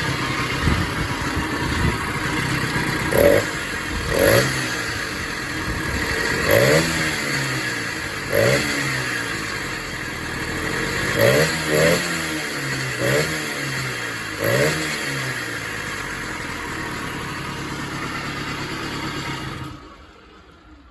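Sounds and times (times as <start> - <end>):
moped engine revving and idling: 0.0 - 20.9.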